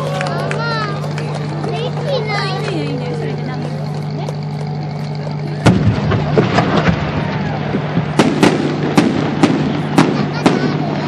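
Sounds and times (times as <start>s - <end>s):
steady low hum: 0.0s - 11.0s
fireworks bursting and crackling: 3.8s - 11.0s.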